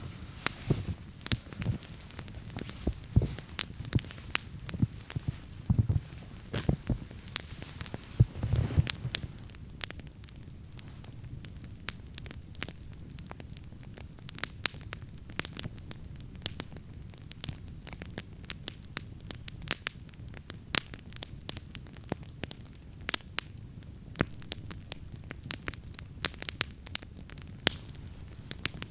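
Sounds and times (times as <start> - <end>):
low thuds: 0.0 - 9.5
low steady rumble: 0.0 - 9.6
campfire crackling: 0.0 - 28.9.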